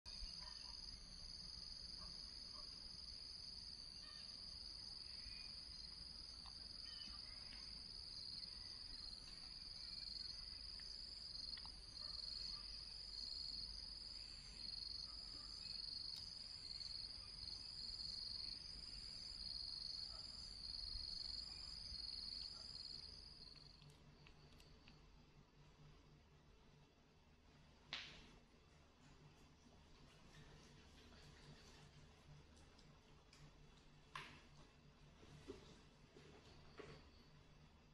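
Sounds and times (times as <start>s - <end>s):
insects trilling: 0.1s - 24.9s.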